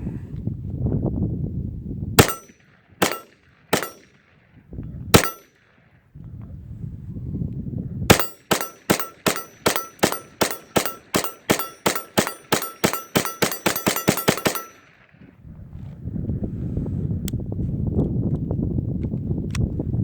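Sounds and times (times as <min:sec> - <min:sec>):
rifle firing rapid shots: 0:02.2 - 0:04.2, 0:05.2 - 0:05.5, 0:08.1 - 0:15.0.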